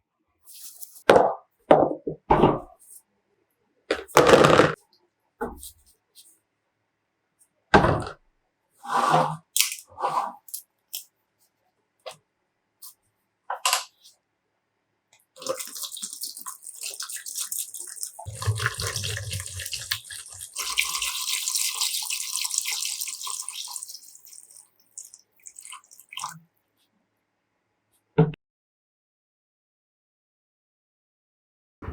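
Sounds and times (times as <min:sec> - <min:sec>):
water dripping: 0:15.4 - 0:26.4
water running and splashing: 0:15.4 - 0:26.4.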